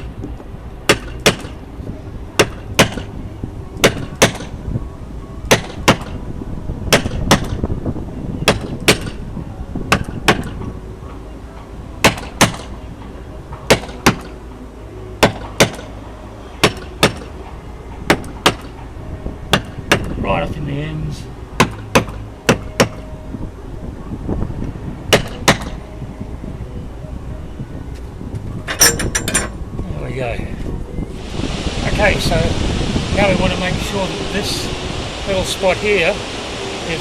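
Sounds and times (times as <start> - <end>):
mallet striking caulking iron: 0.9 - 1.6, 2.4 - 3.1, 3.8 - 4.5, 5.5 - 6.1, 6.9 - 7.6, 8.5 - 9.2, 12.0 - 12.7, 13.7 - 14.3, 15.2 - 15.8, 16.6 - 17.3, 18.1 - 18.7, 19.5 - 20.1, 21.6 - 23.0, 25.1 - 25.7.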